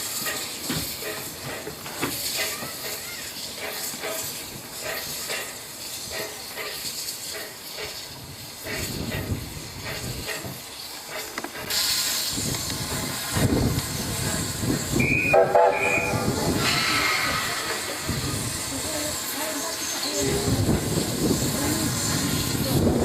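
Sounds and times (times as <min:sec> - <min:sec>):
steam locomotive hissing: 0:00.0 - 0:23.0
steam whistle: 0:14.9 - 0:16.4.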